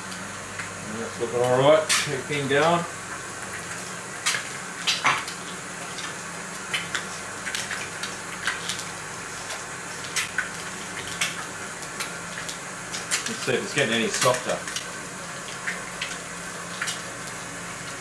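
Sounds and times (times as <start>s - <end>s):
food sizzling in a frying pan: 0.0s - 18.0s
crackles and pops: 3.1s - 13.5s.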